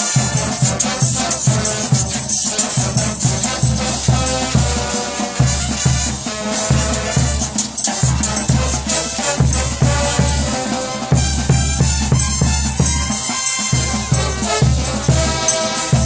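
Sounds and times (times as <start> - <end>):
shaker: 0.0 - 6.2
brass band playing: 0.0 - 16.0
low drum beat: 0.4 - 13.1.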